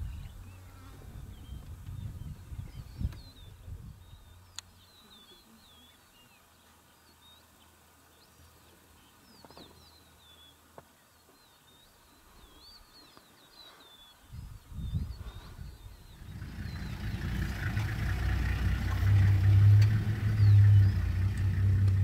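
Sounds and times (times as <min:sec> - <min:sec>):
small birds chirping: 0:00.0 - 0:22.0
low rumble: 0:14.8 - 0:22.0.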